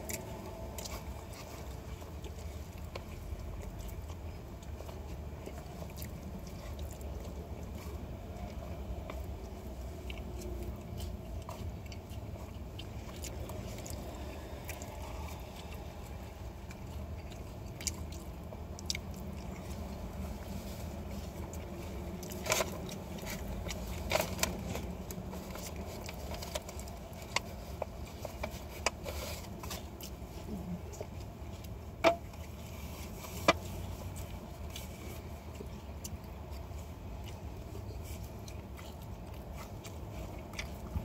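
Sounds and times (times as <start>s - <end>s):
person chewing and biting food: 0.0s - 41.0s
steady low hum: 0.0s - 41.0s.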